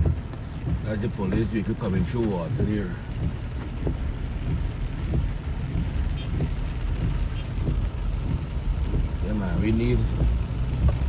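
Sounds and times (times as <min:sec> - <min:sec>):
motor vehicle driving: 0:00.0 - 0:11.0.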